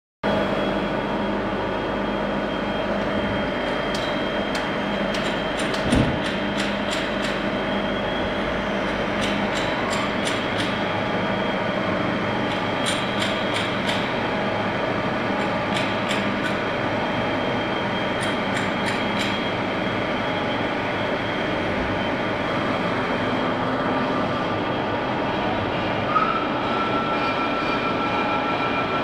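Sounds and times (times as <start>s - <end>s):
sharp ticks: 18.2s - 19.4s.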